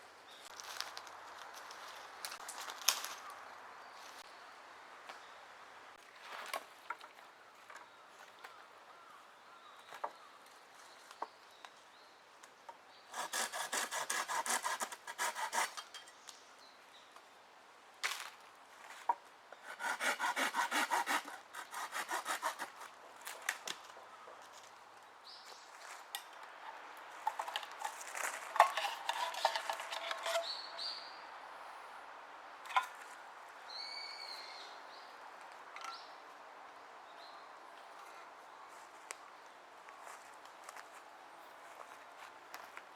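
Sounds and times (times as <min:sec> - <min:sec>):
hand saw cutting wood: 0:13.1 - 0:16.1, 0:19.6 - 0:22.9, 0:27.3 - 0:30.6.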